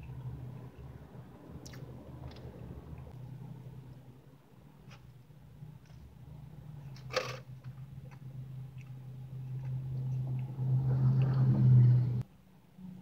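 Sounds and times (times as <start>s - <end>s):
low steady hum: 0.0s - 13.0s
chewing cupcake: 7.9s - 11.4s.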